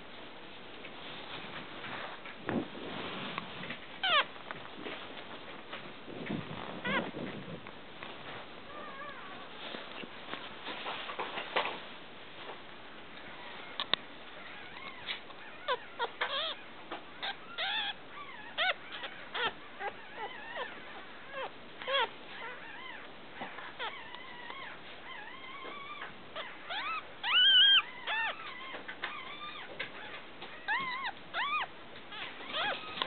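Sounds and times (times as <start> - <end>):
puppies whimpering and squeaking: 3.9 - 4.4, 6.4 - 7.5, 8.6 - 10.0, 13.2 - 33.0.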